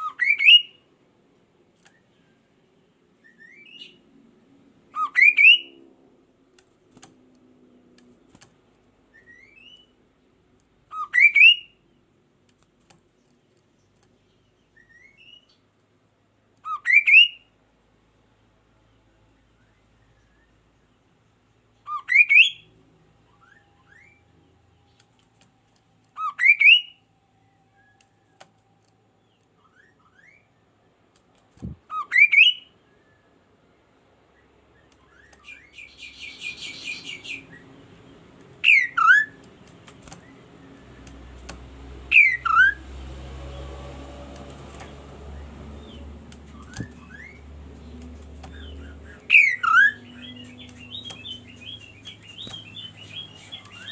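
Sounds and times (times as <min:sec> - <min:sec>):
low background hum: 0:00.0 - 0:53.9
bird calling: 0:35.0 - 0:37.7, 0:38.5 - 0:42.8, 0:44.6 - 0:53.9.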